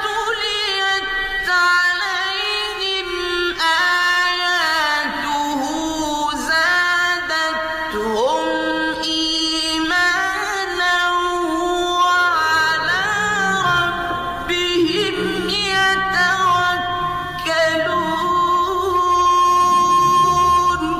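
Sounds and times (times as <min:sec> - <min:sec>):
woman singing: 0:00.0 - 0:20.9.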